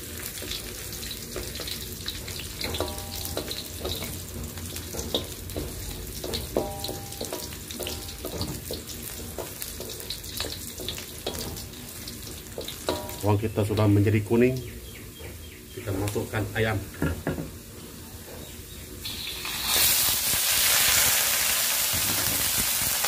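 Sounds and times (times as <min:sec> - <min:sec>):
wooden spatula scraping wok: 0:00.0 - 0:13.2
aromatics sizzling in hot oil: 0:00.0 - 0:23.0.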